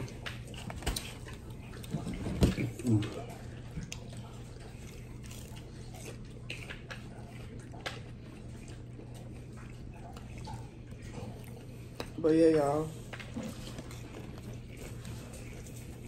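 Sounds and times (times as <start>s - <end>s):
wet chewing and mouth clicks: 0.0s - 16.0s.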